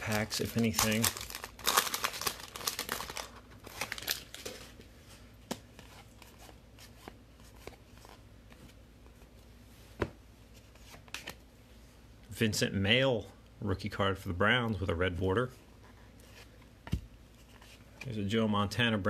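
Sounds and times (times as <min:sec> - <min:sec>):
card pack wrapper tearing: 0:00.0 - 0:04.5
cards being handled: 0:10.0 - 0:11.4.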